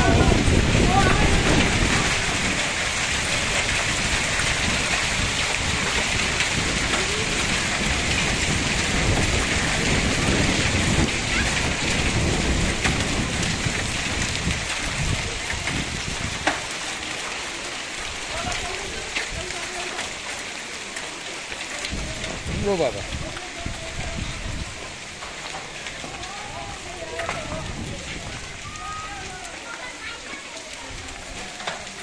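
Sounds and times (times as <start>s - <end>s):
low rumbling: 0.0s - 16.4s
rain and hail hissing: 0.0s - 32.0s.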